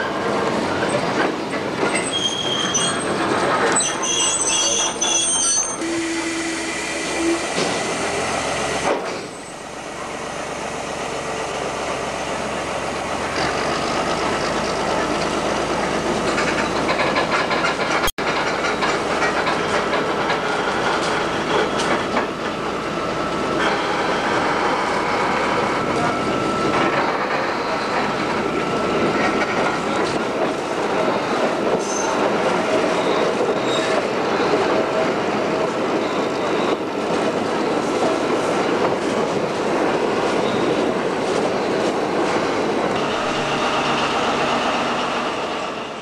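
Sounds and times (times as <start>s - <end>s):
train wheels rumbling on rails: 0.0s - 46.0s
train wheels squealing: 1.8s - 8.2s, 23.5s - 29.5s, 31.2s - 34.5s, 35.9s - 37.0s, 40.3s - 40.9s.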